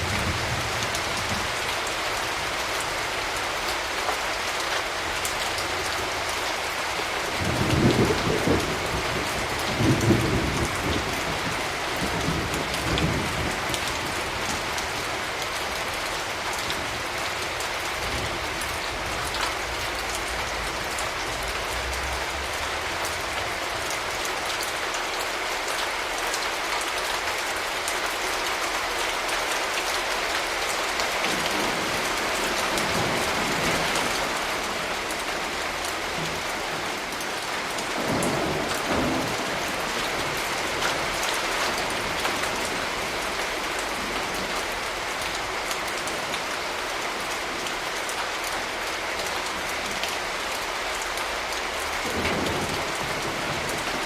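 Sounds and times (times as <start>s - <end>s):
steady rain: 0.0s - 54.0s
distant thunder rumbles: 7.4s - 14.4s, 18.1s - 24.6s.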